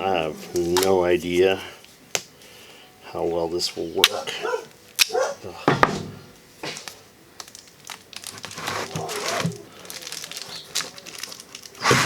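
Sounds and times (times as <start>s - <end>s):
insulation crinkling and rustling: 0.0s - 2.2s, 6.2s - 12.0s.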